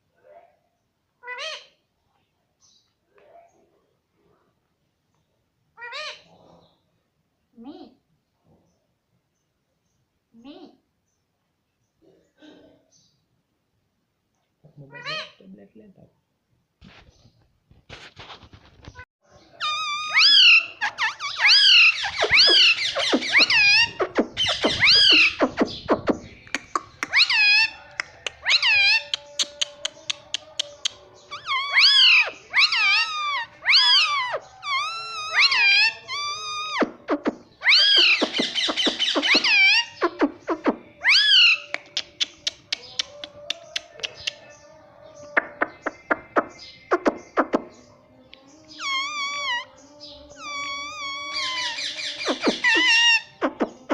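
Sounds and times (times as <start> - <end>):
parrot shrill calls: 1.2 - 1.8, 5.8 - 6.3, 19.5 - 25.9, 26.8 - 36.9, 37.5 - 41.7, 48.8 - 49.8, 50.4 - 53.4.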